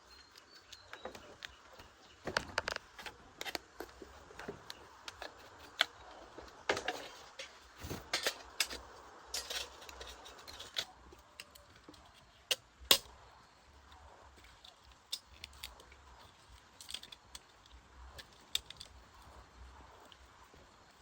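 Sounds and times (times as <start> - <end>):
metal tools clinking: 6.7 - 10.9.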